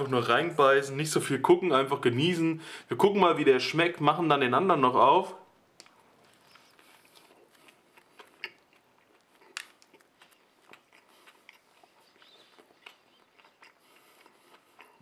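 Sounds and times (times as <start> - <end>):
man chewing with wet smacks: 5.8 - 15.0.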